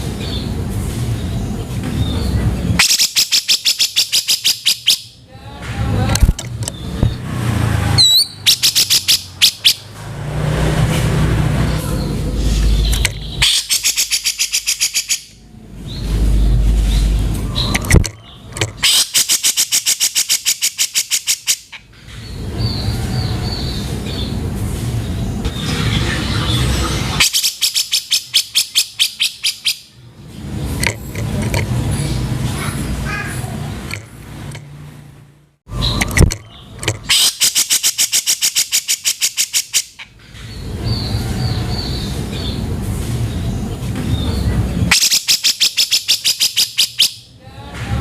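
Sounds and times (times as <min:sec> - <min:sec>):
harsh rasping bird calls: 0:02.1 - 0:05.2, 0:06.6 - 0:09.9, 0:11.4 - 0:24.4, 0:25.2 - 0:30.0, 0:35.7 - 0:42.7, 0:44.2 - 0:47.3
bird whistle: 0:02.8 - 0:05.1, 0:08.0 - 0:09.8, 0:12.7 - 0:15.4, 0:27.2 - 0:29.9, 0:44.9 - 0:47.3
low rumble: 0:15.4 - 0:18.5.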